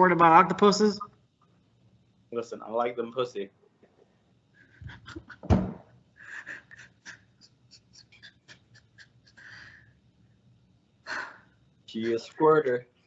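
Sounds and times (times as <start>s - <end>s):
breathy wheezing laughter: 4.6s - 5.5s, 6.2s - 10.0s.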